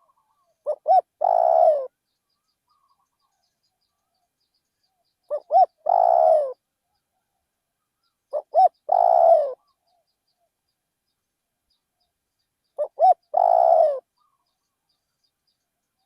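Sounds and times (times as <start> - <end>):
dove cooing: 0.0 - 2.0, 5.3 - 6.6, 8.3 - 9.9, 12.8 - 14.4.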